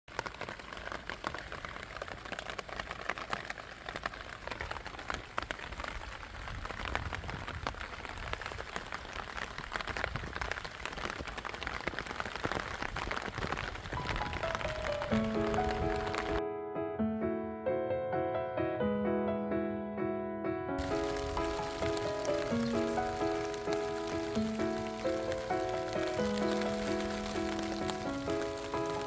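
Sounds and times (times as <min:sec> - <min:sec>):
rain falling: 0:00.1 - 0:16.4, 0:20.8 - 0:29.0
music: 0:14.0 - 0:29.0.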